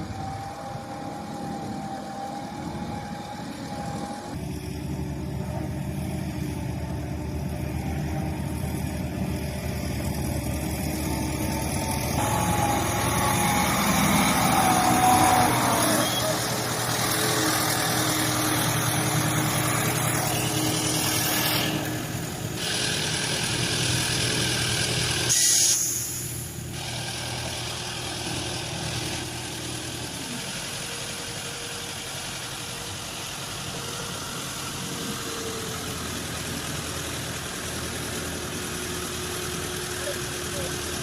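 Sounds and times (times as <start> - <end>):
vehicle engines idling: 0.0 - 41.0
rushing noise: 9.9 - 26.7.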